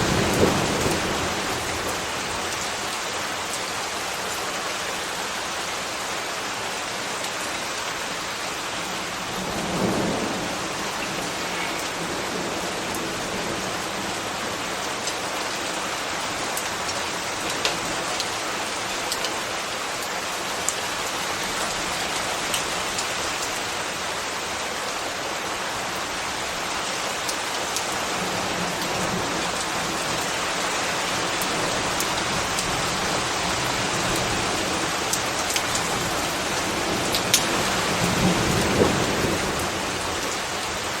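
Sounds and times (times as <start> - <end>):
rain on hard surfaces: 0.0 - 41.0.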